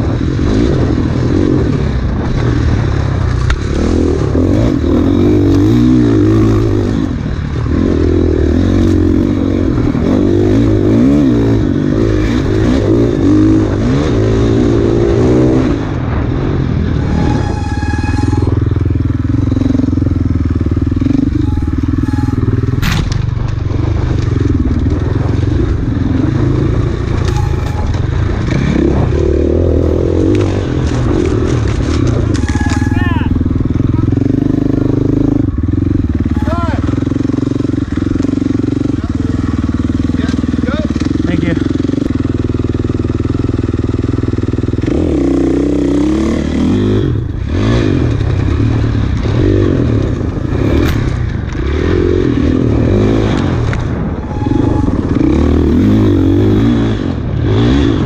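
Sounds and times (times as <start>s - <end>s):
dirt bike engine revving: 0.0s - 58.0s
brief high squeal: 17.1s - 18.7s, 21.4s - 22.8s, 27.2s - 28.0s, 32.4s - 33.4s, 54.2s - 55.6s
bike clattering over rough ground: 30.3s - 33.1s.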